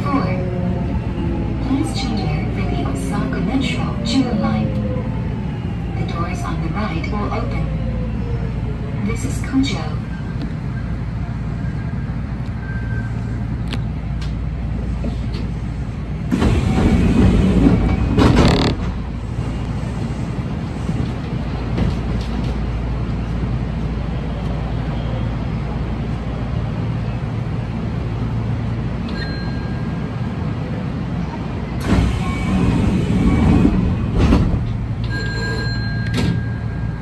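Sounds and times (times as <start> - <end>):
train motor and rail hum: 0.0 - 37.0
train rushing noise: 0.0 - 37.0.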